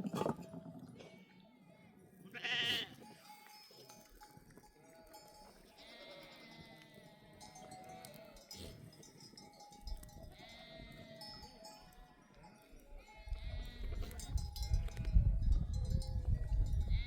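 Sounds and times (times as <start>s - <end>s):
sheep bleating: 1.1s - 3.6s, 4.8s - 8.8s, 10.3s - 15.0s.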